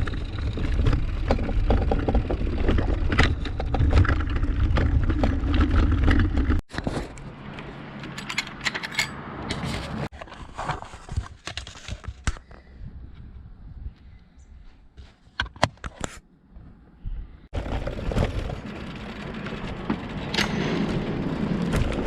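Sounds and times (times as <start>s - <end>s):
metallic rattles and clicks: 0.0s - 10.2s
wind rumble on microphone: 12.6s - 14.6s.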